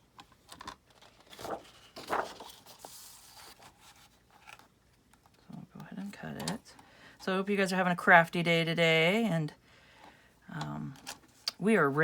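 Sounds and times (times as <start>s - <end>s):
paper rustling and scraping: 0.4s - 5.4s.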